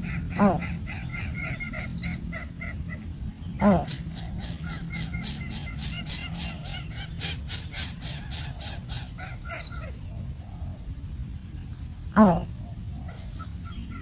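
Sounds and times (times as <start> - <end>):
baby bird chirping: 0.0 - 10.2
steady low rumble: 0.0 - 14.0.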